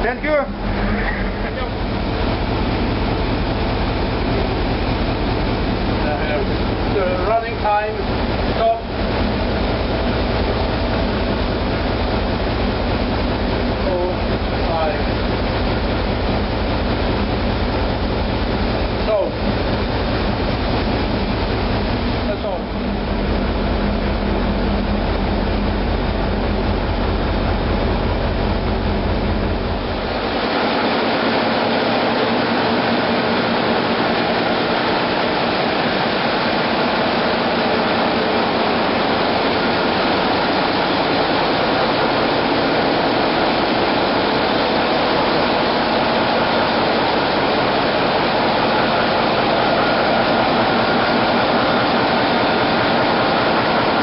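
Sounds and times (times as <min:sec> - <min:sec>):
deep pulsing engine noise: 0:00.0 - 0:54.0
diesel machinery running loudly: 0:00.0 - 0:54.0.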